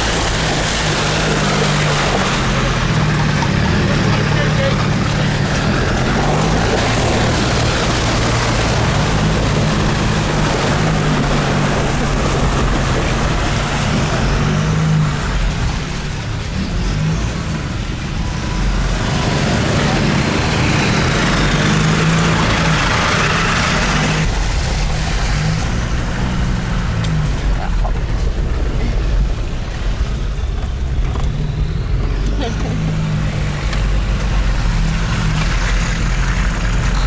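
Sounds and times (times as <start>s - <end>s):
tyre and wind noise: 0.0s - 37.0s
vehicle engine driving: 0.0s - 37.0s.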